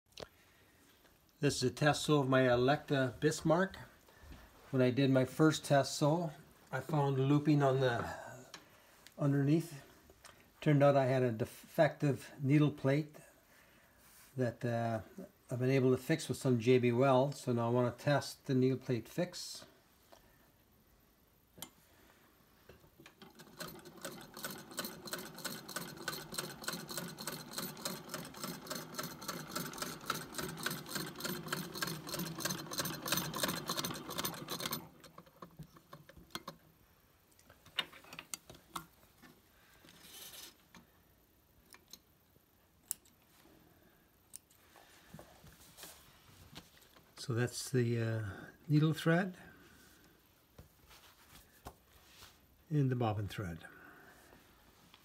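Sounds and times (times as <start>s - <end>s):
sewing machine stitching: 23.1s - 36.6s.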